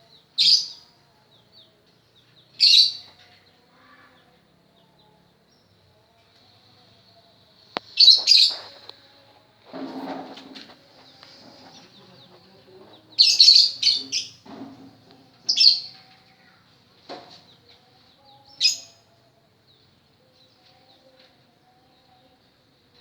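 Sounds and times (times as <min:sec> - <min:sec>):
lovebird chirping: 0:02.4 - 0:03.2, 0:07.8 - 0:08.9, 0:11.1 - 0:14.4, 0:15.4 - 0:16.6
soft bird twittering: 0:07.8 - 0:08.9.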